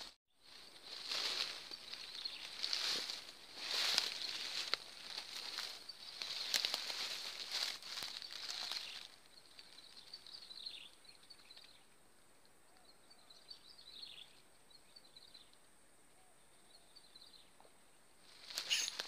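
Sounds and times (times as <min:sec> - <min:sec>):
brief rustling: 0:18.4 - 0:19.0
small bird twittering: 0:18.4 - 0:19.0.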